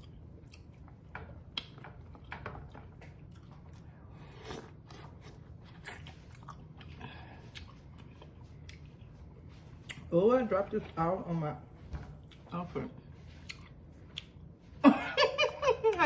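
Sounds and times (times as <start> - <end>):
person chewing food: 0.0 - 10.1, 12.2 - 12.5, 13.1 - 14.8
faint low hum: 0.0 - 16.0.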